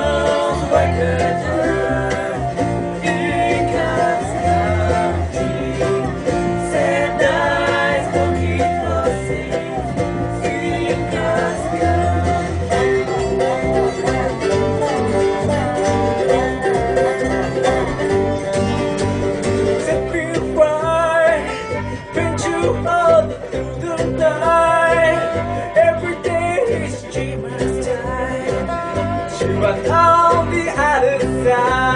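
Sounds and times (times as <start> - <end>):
person singing: 0.0 - 18.6, 19.7 - 31.9
banjo picking: 0.0 - 31.9
bluegrass band playing: 0.0 - 31.9
guitar picking: 0.0 - 31.9.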